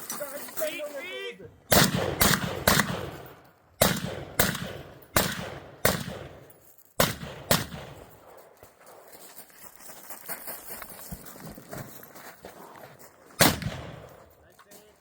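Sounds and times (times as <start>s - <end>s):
echoing gunshots: 1.7s - 8.5s, 13.4s - 14.2s.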